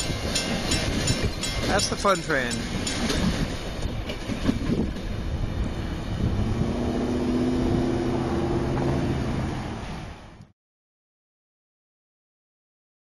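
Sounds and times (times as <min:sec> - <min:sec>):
train wheels on rail: 0:00.0 - 0:07.7.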